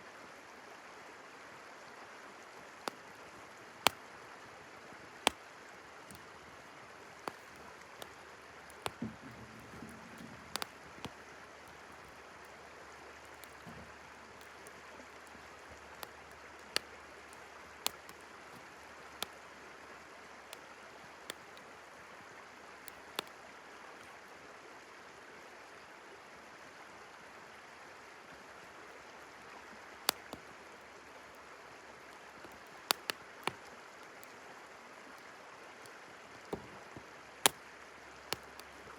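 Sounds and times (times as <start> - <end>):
river flowing: 0.0 - 38.9
campfire crackling and popping: 2.8 - 4.2, 5.1 - 21.9, 22.8 - 23.4, 30.0 - 34.4, 35.2 - 38.9.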